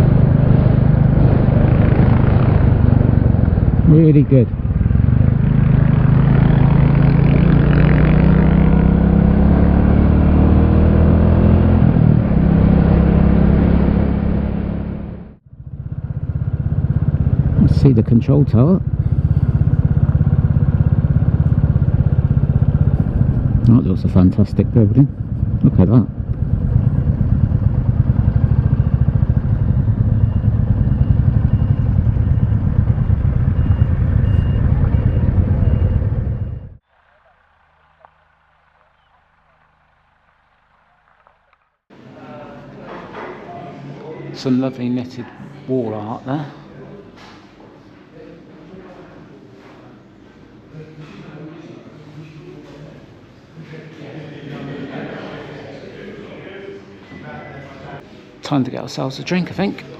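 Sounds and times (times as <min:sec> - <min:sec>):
motorcycle engine running: 0:00.0 - 0:41.8
faint high beep: 0:28.4 - 0:36.8.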